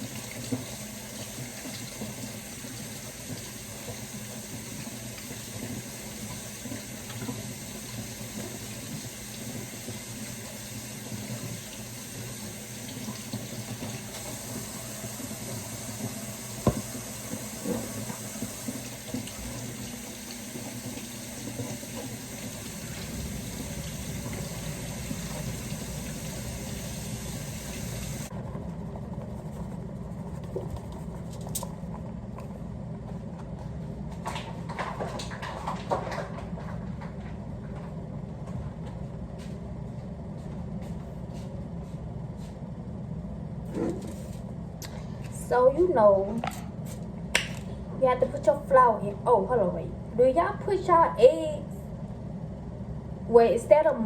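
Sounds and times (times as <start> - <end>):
tap water running into sink: 0.0 - 28.3.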